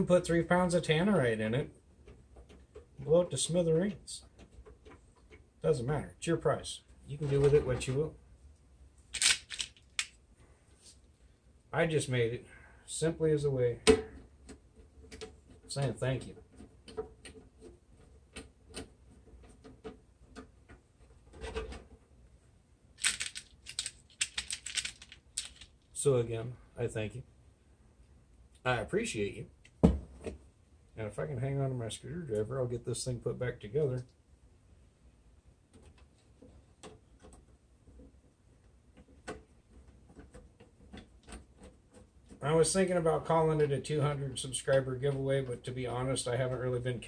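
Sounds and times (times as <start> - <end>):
screwdriver and metal parts clicking: 9.2 - 10.2, 23.0 - 25.8.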